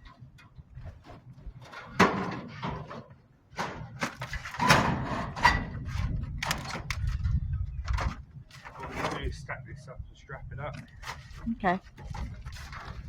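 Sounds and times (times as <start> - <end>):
scrap metal knocking and clattering: 0.0 - 7.0, 7.9 - 9.4.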